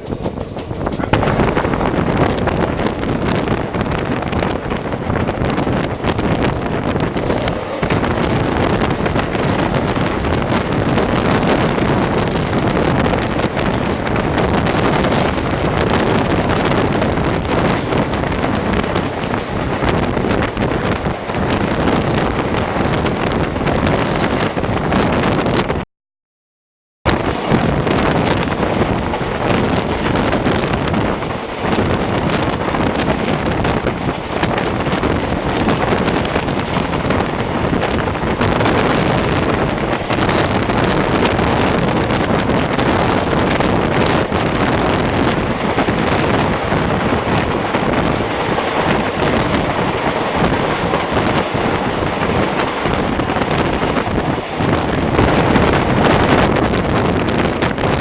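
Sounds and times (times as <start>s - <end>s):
passenger train running: 0.0s - 25.8s, 27.1s - 58.0s
wind buffeting microphone: 0.0s - 25.8s, 27.1s - 58.0s.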